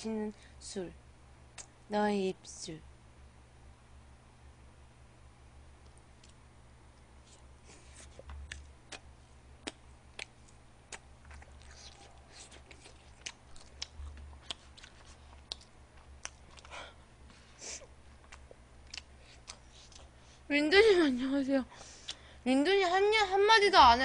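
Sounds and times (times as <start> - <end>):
low steady hum: 0.0 - 24.0
person chewing: 7.2 - 20.2.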